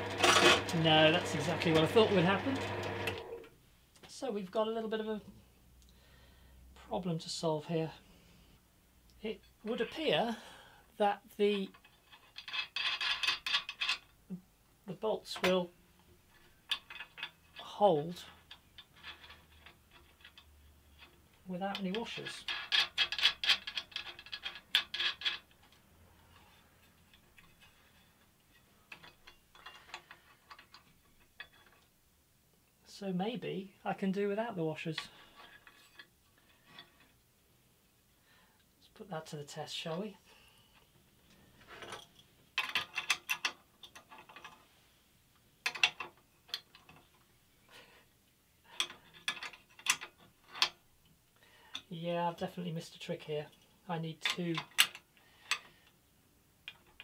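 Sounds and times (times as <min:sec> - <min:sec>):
metal bolts clicking and rattling: 0:11.7 - 0:14.2, 0:15.4 - 0:32.0, 0:41.7 - 0:44.7, 0:45.6 - 0:47.2, 0:48.7 - 0:50.8, 0:53.5 - 0:55.8, 0:56.6 - 0:57.0.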